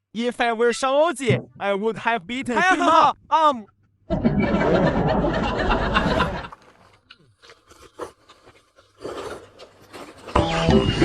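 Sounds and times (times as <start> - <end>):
spoons scraping bowls: 6.4 - 10.7
chewing: 6.5 - 10.4.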